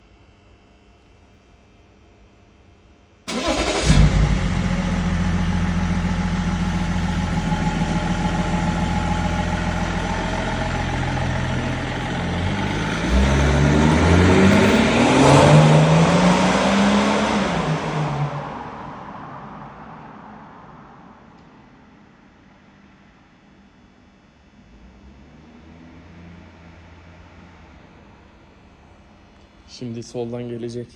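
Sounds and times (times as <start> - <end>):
car engine idling: 3.3 - 18.9
car engine revving: 3.3 - 20.4, 24.7 - 28.3
car engine starting: 3.3 - 21.6, 24.7 - 29.0.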